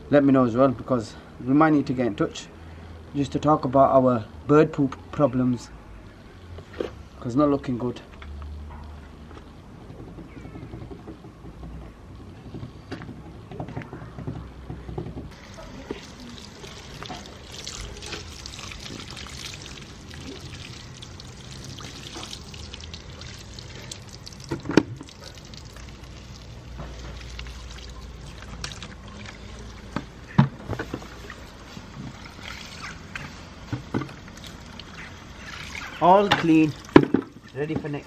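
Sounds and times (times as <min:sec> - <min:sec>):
water pouring over a car: 0:15.3 - 0:38.0.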